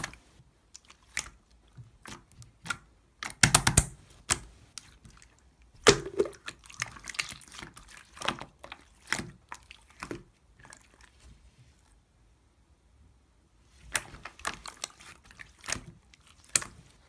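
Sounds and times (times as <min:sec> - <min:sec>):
slime squeezed wet pops: 0:05.8 - 0:07.3.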